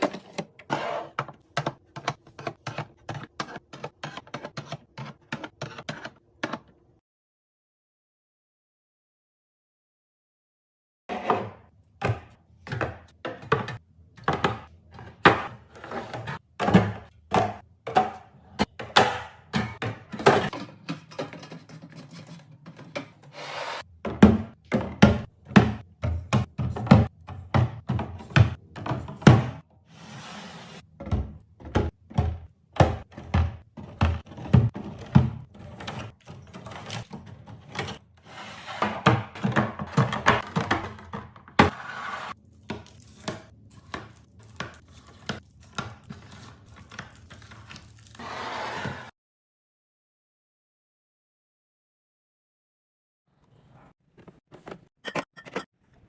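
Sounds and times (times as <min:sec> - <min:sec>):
containers knocking and clattering: 0:38.8 - 0:41.7.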